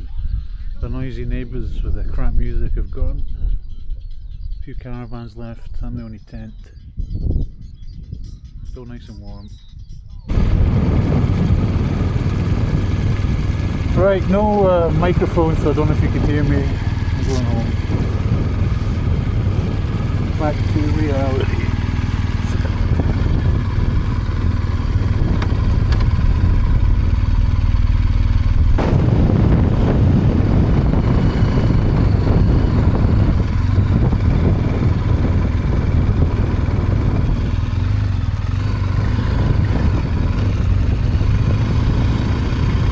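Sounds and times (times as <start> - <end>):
motorcycle engine running: 10.3 - 42.9.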